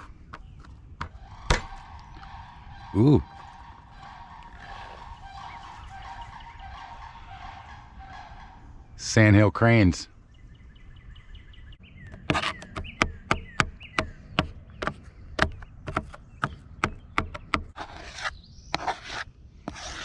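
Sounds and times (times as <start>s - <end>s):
knife scraping cutting board: 17.8s - 20.0s.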